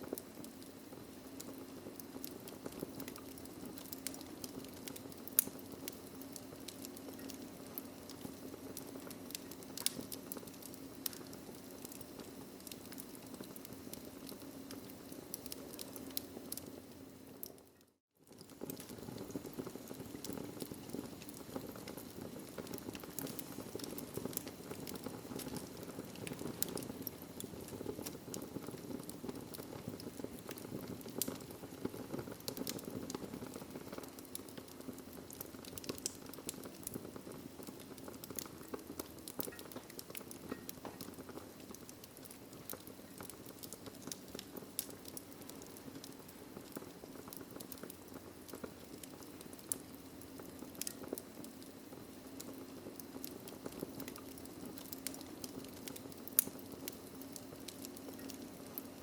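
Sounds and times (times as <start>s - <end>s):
flames rumbling and hissing: 0.0s - 17.5s, 18.3s - 59.0s
burning logs crackling and popping: 0.0s - 59.0s.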